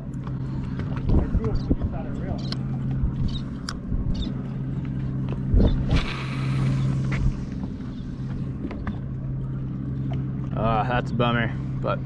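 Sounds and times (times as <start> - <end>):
boat motor idling: 0.0 - 12.0
hissing rush: 5.9 - 7.6.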